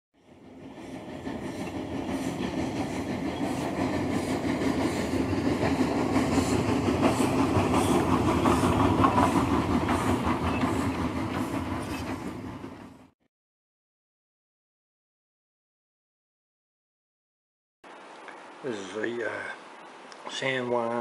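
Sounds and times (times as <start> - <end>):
train running past: 0.2 - 13.2.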